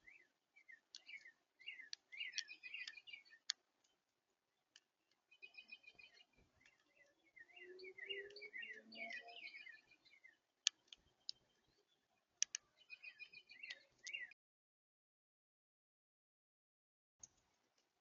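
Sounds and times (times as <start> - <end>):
small birds chirping: 0.0 - 14.4
sharp clicks: 0.9 - 4.0, 10.6 - 11.4, 12.4 - 12.7.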